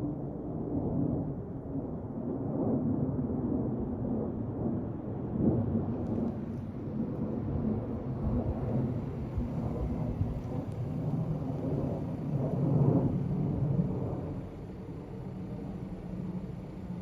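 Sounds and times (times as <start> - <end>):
jet engines roaring: 4.1 - 17.0.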